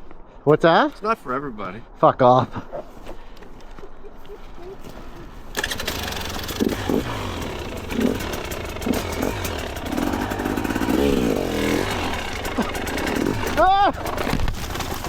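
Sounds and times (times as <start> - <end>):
dirt bike engine revving: 5.5 - 15.0.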